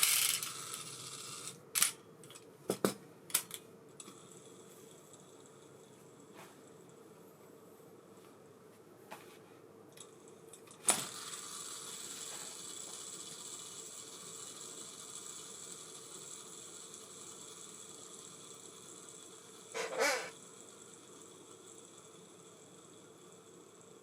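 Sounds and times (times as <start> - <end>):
fishing reel spool whirring: 0.0 - 1.9, 11.0 - 24.0.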